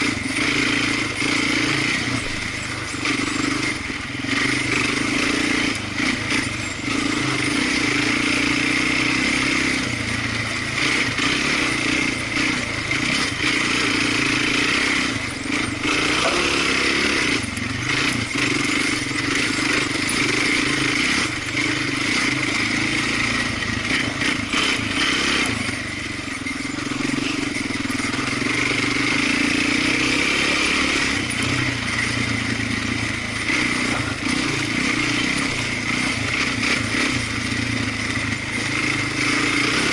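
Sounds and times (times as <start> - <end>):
off-road vehicle engine revving: 0.0 - 39.9
sharp clatters: 0.0 - 39.9.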